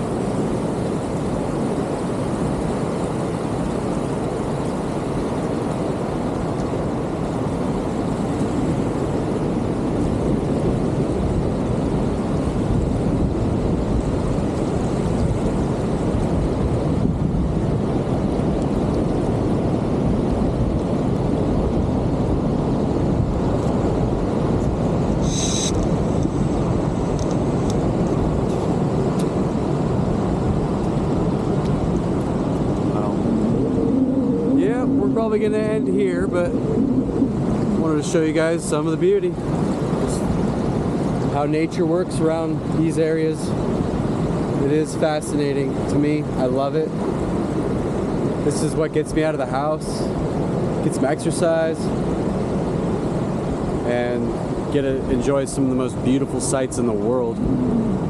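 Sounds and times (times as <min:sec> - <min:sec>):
ocean surf breaking: 0:00.0 - 0:58.0
brief high-pitched sound: 0:25.2 - 0:25.8.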